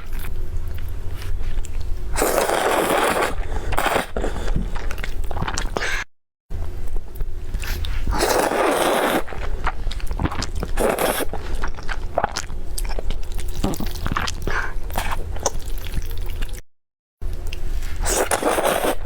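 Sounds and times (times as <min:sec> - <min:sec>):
biting and crunching food: 0:07.5 - 0:16.6.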